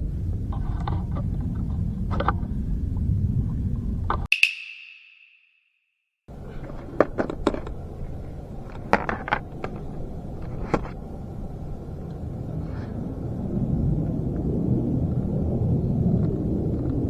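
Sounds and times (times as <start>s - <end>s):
low steady rumble: 0.0s - 4.3s, 6.3s - 17.0s.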